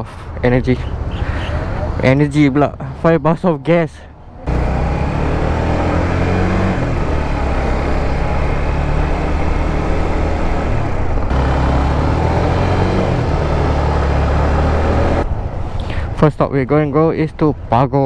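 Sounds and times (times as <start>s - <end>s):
motorcycle engine running: 4.5s - 15.2s.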